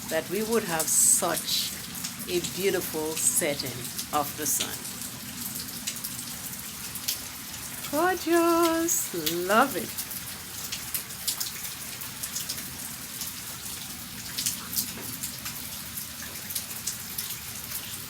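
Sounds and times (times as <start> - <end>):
light rain falling: 0.0 - 18.0.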